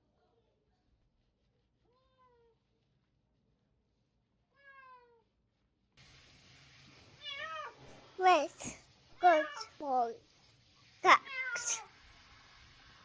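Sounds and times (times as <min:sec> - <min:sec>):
steady hiss: 0:06.0 - 0:13.0
cat meowing: 0:09.3 - 0:09.8, 0:11.1 - 0:11.9.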